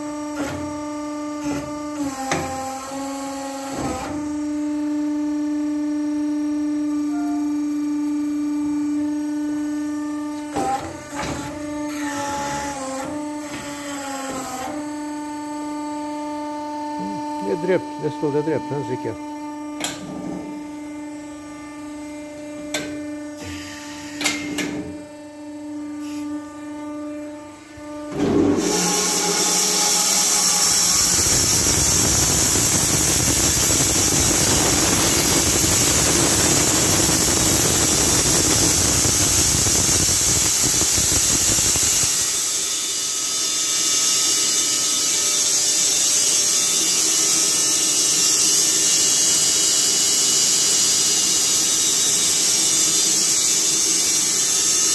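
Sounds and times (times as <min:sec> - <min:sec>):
bandsaw motor hum: 0:06.1 - 0:54.9
bandsaw blade sawing log: 0:28.3 - 0:38.6.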